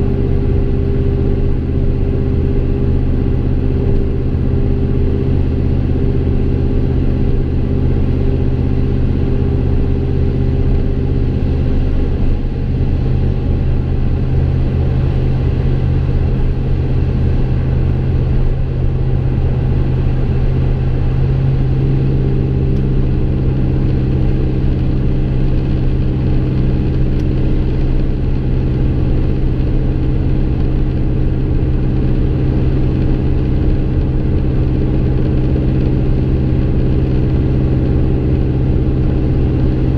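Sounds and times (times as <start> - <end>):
deep engine exhaust note: 0.0 - 39.9.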